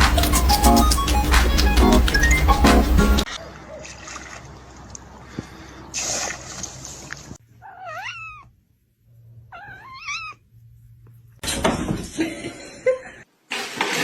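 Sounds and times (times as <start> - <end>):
cat meowing: 7.6 - 8.6, 9.5 - 10.4.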